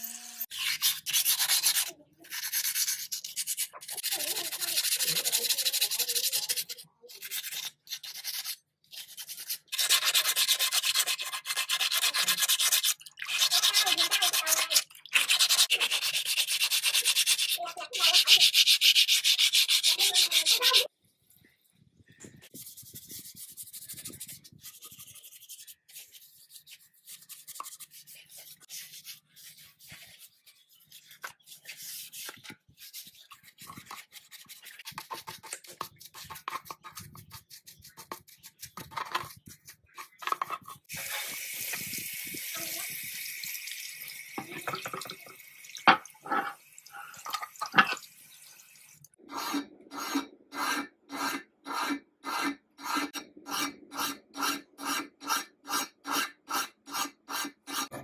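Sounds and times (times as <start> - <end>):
filing strokes back and forth: 0.0 - 20.9, 22.4 - 41.3, 49.3 - 58.0
hand sanding and scraping: 0.5 - 20.9, 22.4 - 41.3.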